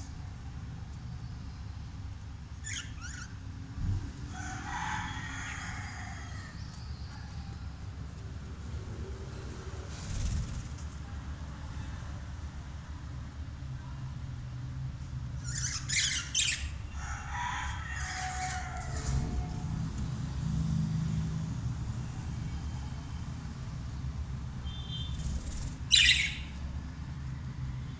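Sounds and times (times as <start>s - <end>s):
budgerigars chirping: 2.6s - 3.4s, 15.4s - 16.8s, 24.8s - 26.6s.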